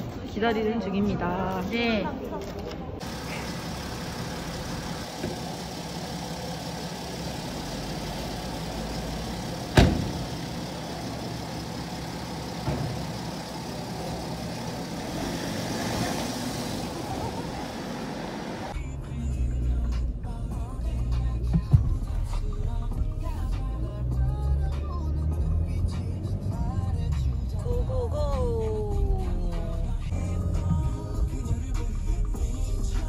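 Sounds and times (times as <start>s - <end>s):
muffled engine rumble in cabin: 3.0s - 15.0s
car engine idling: 3.0s - 24.8s
sharp thump: 9.7s - 10.4s.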